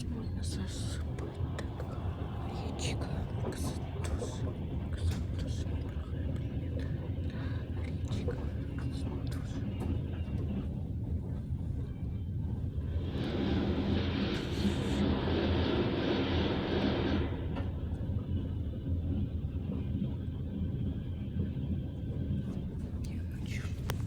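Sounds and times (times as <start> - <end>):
engine-like hum: 0.0 - 24.0
loud rushing noise: 13.0 - 17.6.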